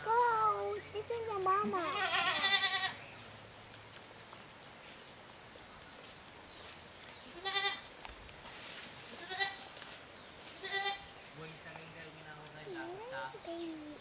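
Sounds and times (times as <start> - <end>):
goat bleating: 1.6 - 3.0, 7.3 - 7.9, 9.1 - 9.7, 10.6 - 11.2.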